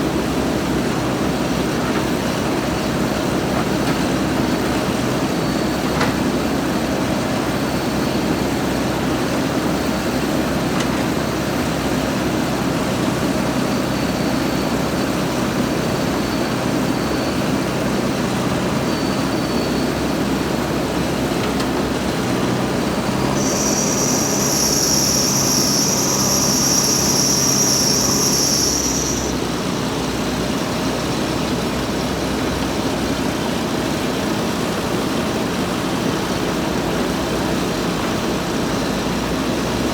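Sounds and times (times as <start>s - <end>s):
high steady squeal: 0.0s - 21.4s, 22.6s - 30.7s
diesel engine running: 0.0s - 39.9s.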